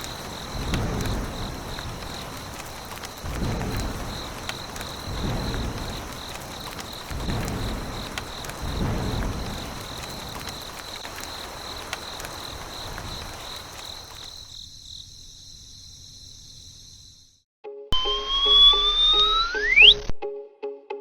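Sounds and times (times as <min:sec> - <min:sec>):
steady hiss: 0:00.0 - 0:16.7
insects trilling: 0:00.0 - 0:17.4.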